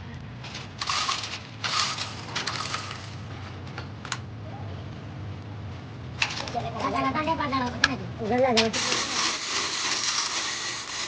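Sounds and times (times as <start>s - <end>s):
scraping and rattling: 0.5s - 3.2s, 8.6s - 11.0s.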